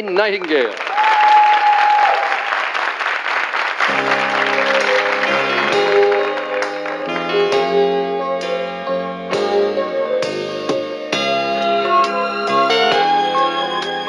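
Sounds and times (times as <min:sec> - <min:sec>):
studio audience applauding: 0:00.0 - 0:07.8
soft keyboard chords: 0:03.9 - 0:14.0.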